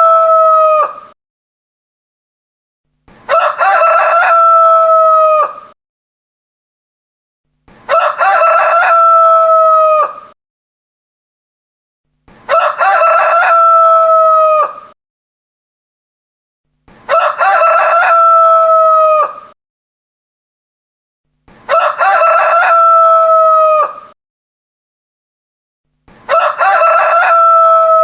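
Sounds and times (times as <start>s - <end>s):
rooster crowing: 0.0s - 1.0s, 3.3s - 5.8s, 7.9s - 10.4s, 12.5s - 15.0s, 17.1s - 19.6s, 21.7s - 24.2s, 26.3s - 28.0s.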